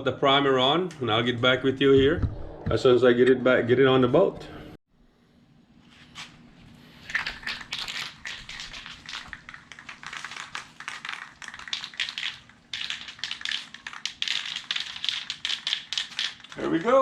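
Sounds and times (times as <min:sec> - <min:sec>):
objects clicking and crinkling: 0:07.0 - 0:17.0.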